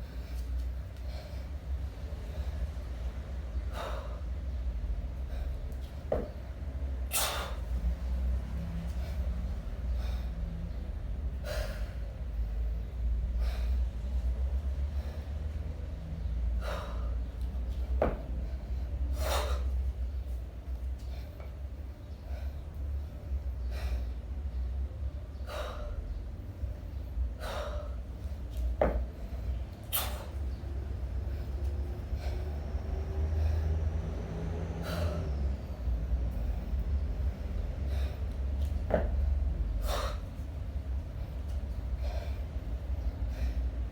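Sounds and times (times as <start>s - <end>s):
person breathing forcefully: 0.0s - 20.2s, 25.4s - 43.9s
steady low rumble: 0.0s - 43.9s
forceful exhalations: 7.0s - 7.9s, 28.9s - 30.4s, 31.1s - 40.4s.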